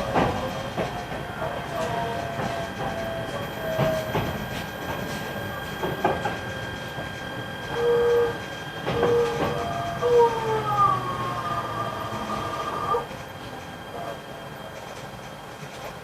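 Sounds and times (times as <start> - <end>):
train inverter whine falling: 0.0 - 16.0
train running rumble: 0.0 - 16.0.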